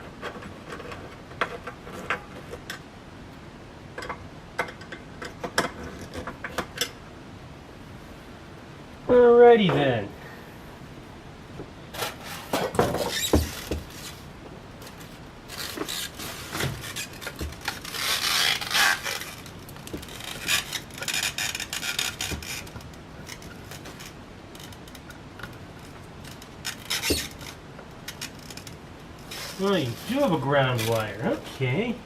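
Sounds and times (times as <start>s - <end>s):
hands rubbing and scraping parts: 0.0s - 2.9s, 11.9s - 31.9s
small clicks and knocks: 3.9s - 7.0s.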